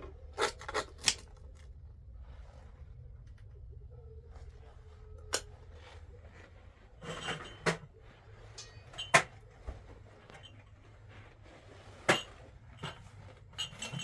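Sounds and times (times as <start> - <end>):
dish scraping: 6.9 - 9.4, 11.7 - 14.0
utensils clinking: 7.0 - 14.0.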